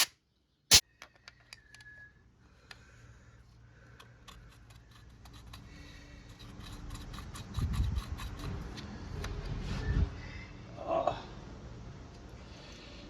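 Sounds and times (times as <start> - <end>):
file clicking and scraping metal: 3.9 - 8.9.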